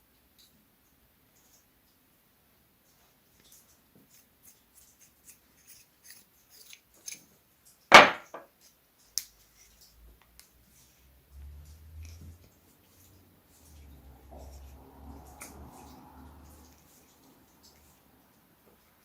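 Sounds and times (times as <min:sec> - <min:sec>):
light clicks and taps of parts: 0:08.5 - 0:12.6.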